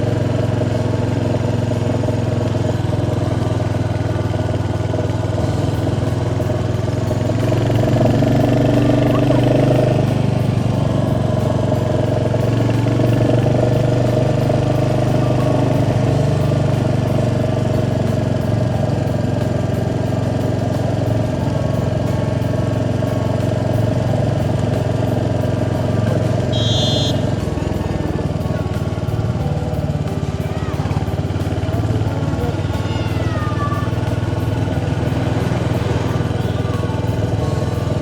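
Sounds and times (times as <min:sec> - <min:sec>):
motorcycle engine running: 0:00.0 - 0:38.0
road and wind noise: 0:00.0 - 0:38.0
short high-pitched tone: 0:26.4 - 0:28.1.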